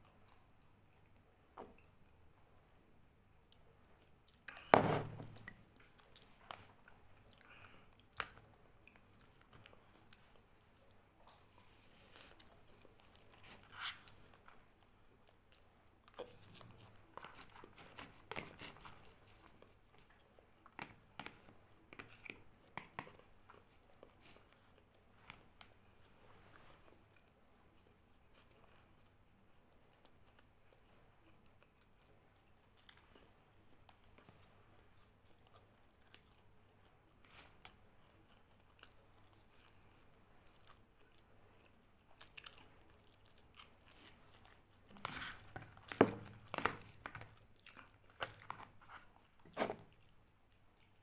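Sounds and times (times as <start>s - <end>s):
person chewing: 29.9s - 51.0s.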